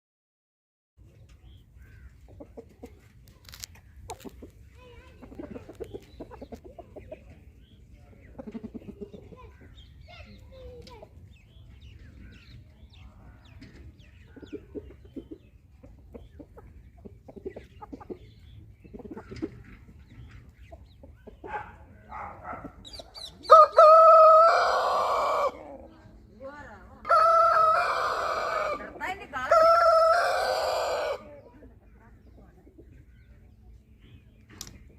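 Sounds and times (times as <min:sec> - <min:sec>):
chickens clucking: 0:01.0 - 0:34.9
rooster crowing: 0:23.5 - 0:25.6.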